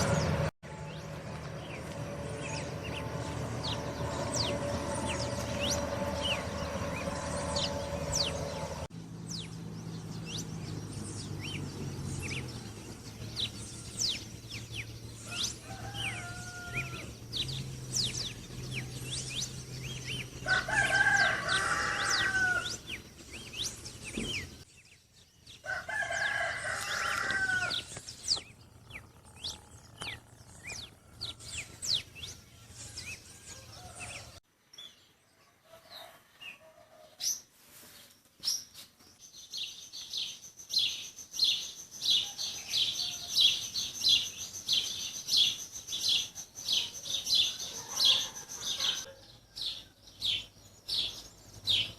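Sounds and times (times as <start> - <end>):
small birds chirping: 0.0 - 35.2, 37.2 - 51.9
rooster crowing: 15.2 - 17.2, 20.4 - 22.9, 25.6 - 28.0, 30.6 - 34.4, 42.2 - 43.6, 47.0 - 49.8.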